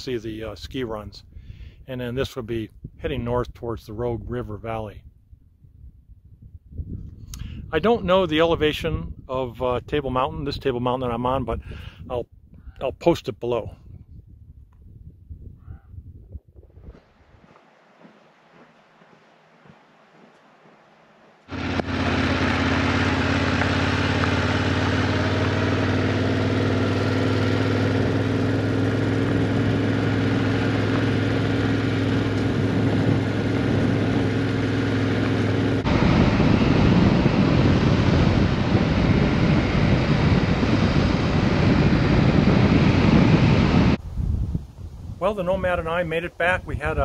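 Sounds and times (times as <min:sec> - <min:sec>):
motorcycle engine running: 0:17.4 - 0:44.0.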